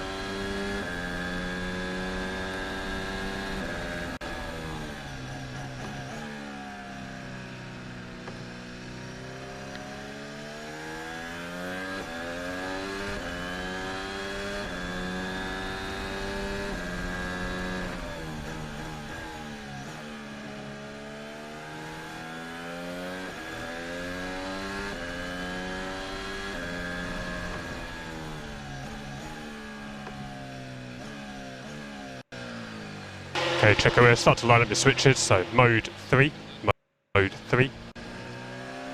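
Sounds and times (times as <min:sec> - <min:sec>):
steady high whine: 0:33.3 - 0:36.6.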